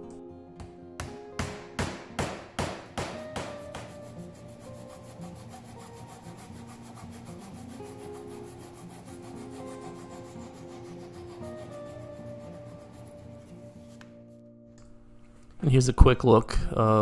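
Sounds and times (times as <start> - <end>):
soft background music: 0.0 - 17.0
saw rasping on wood: 3.1 - 13.8.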